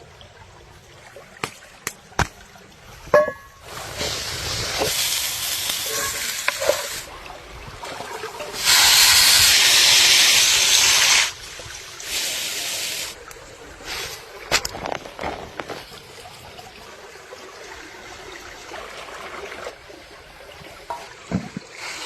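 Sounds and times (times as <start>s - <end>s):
food sizzling: 3.9s - 7.1s.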